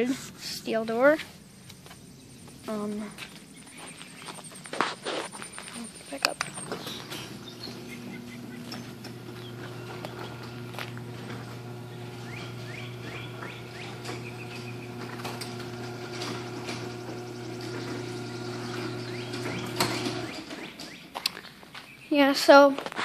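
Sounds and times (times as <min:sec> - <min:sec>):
garage door opener motor hum: 0:06.3 - 0:21.2
garage door opener stopping knock: 0:06.4 - 0:21.1.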